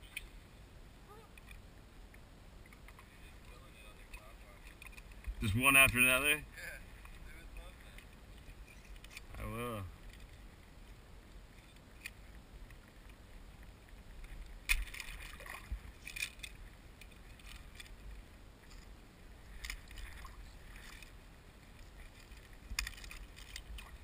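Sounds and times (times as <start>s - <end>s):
water splashing: 14.6s - 16.6s, 19.5s - 24.0s.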